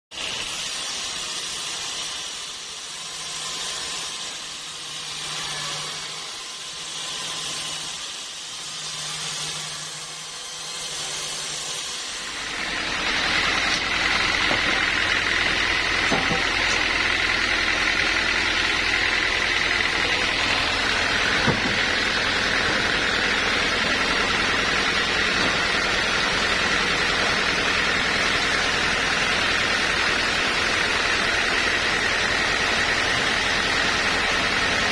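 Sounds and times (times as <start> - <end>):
sawmill machine whining: 0.1 - 34.9
wavering machinery noise: 0.4 - 34.9.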